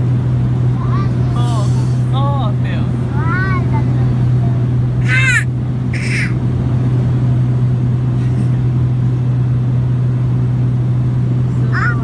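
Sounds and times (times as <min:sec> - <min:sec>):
vehicle engine droning: 0:00.0 - 0:12.0
short high-pitched cry: 0:06.0 - 0:06.4.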